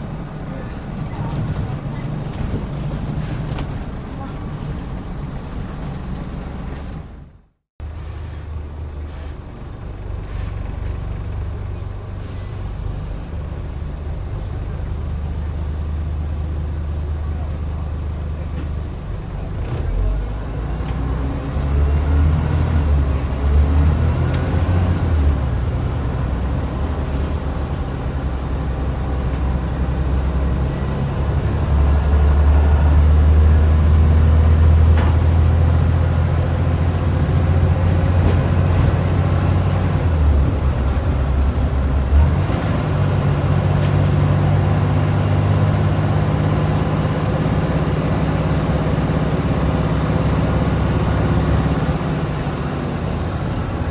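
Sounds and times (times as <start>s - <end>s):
bus diesel engine under load: 0.0s - 53.9s.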